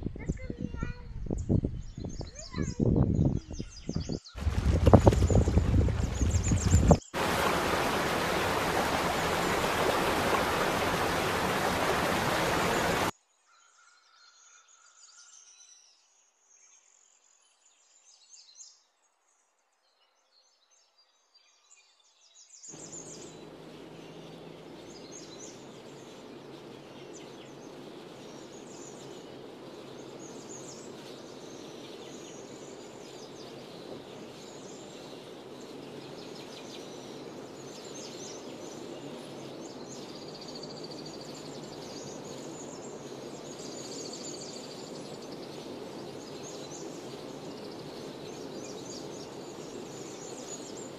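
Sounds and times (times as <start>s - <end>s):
birds chirping: 1.6s - 13.1s, 22.8s - 50.9s
steady rushing noise: 4.4s - 13.1s, 22.8s - 50.9s.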